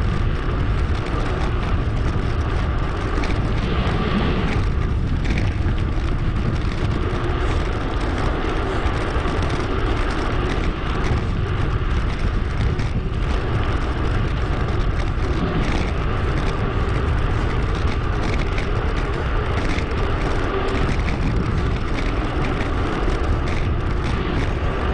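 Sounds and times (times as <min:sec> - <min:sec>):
bicycle road noise: 0:00.0 - 0:24.9
wind rush: 0:00.0 - 0:24.9.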